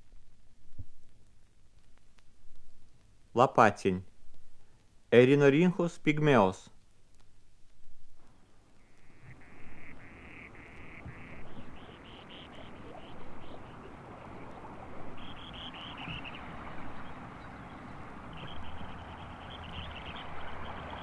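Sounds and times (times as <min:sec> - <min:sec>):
bird singing buzzy trills: 0:08.4 - 0:21.0.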